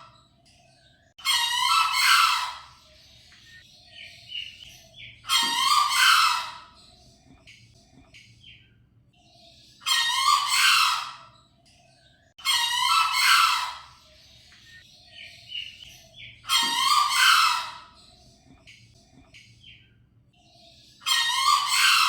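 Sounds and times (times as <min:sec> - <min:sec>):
junglefowl crowing: 0:01.2 - 0:02.7, 0:05.3 - 0:06.7, 0:09.9 - 0:11.2, 0:12.4 - 0:13.9, 0:16.5 - 0:17.9, 0:21.1 - 0:22.0.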